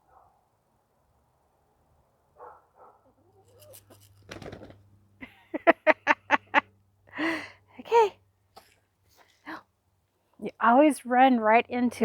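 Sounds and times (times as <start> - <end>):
brief rustling: 3.4 - 4.8.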